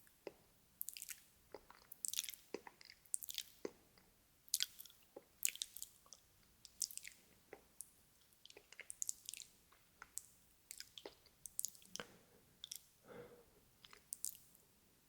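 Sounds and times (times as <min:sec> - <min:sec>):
chewing noises: 0:00.2 - 0:07.7, 0:08.4 - 0:12.9
wet lip smacks: 0:08.5 - 0:12.9.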